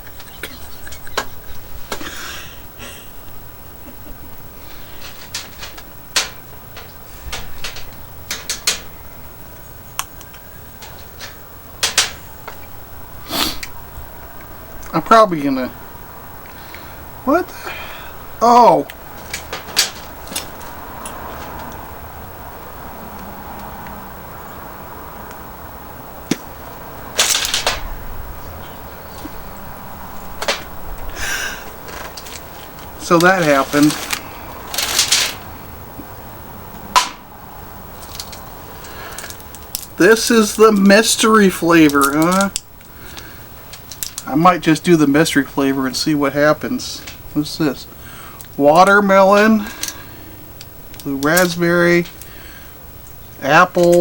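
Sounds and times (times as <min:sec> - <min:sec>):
brief rustle: 0:27.2 - 0:28.0, 0:30.4 - 0:35.5
candies rattling: 0:31.2 - 0:35.5.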